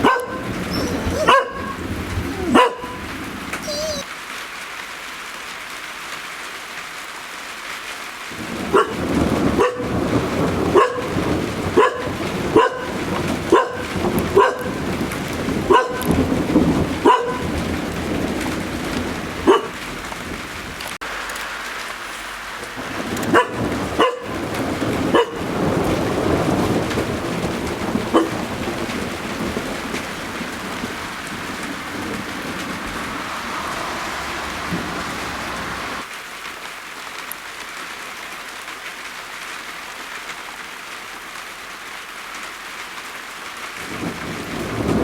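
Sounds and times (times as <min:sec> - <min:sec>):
dog barking: 0:00.0 - 0:04.0, 0:08.6 - 0:14.9, 0:15.6 - 0:16.2, 0:16.9 - 0:17.7, 0:19.4 - 0:19.8, 0:23.2 - 0:25.6, 0:28.1 - 0:28.5
thunder rumble: 0:00.0 - 0:04.0, 0:08.3 - 0:36.1, 0:43.8 - 0:45.0
rain falling: 0:00.0 - 0:45.0.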